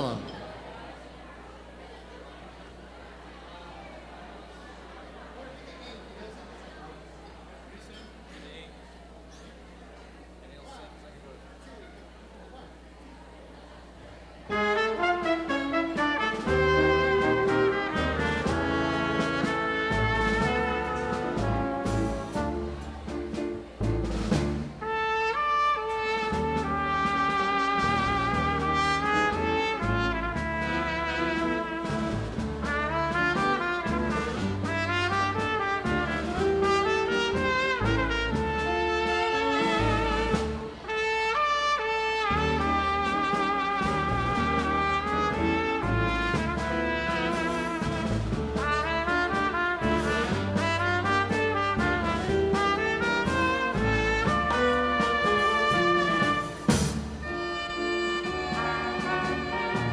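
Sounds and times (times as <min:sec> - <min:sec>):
dance band playing tango: 0:00.0 - 0:01.4, 0:14.4 - 0:59.9.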